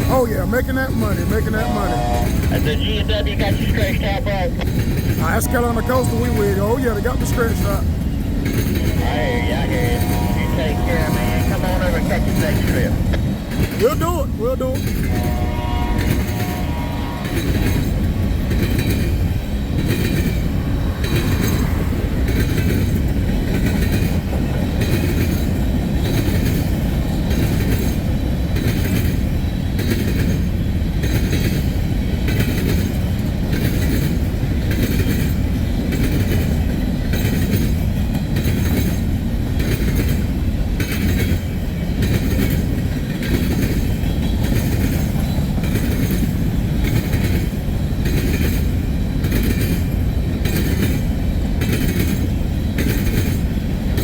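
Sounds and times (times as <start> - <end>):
freight train rumbling past: 0.0 - 54.0
wheels clacking over rail joints: 4.3 - 54.0.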